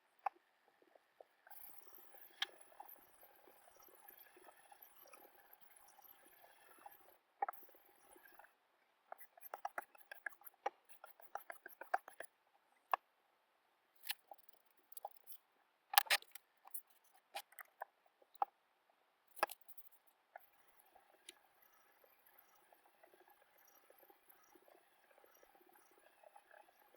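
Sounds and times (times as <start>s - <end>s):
knife ticks and crackles: 14.0s - 18.5s.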